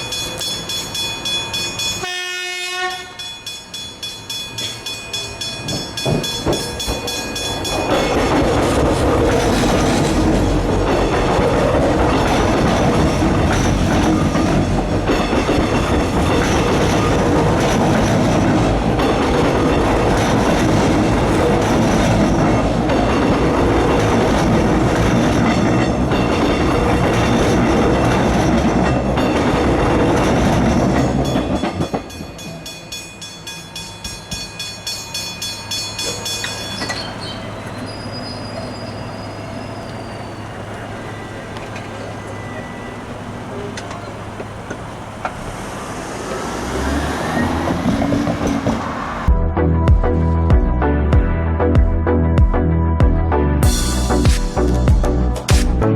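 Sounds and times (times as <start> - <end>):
level crossing bells ringing: 0.0 - 2.2, 3.2 - 8.5, 30.8 - 37.3
train wheels rumbling and clattering: 2.9 - 49.4.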